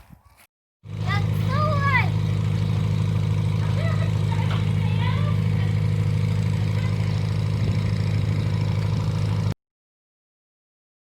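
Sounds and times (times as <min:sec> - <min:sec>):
car engine running: 0:00.8 - 0:09.6.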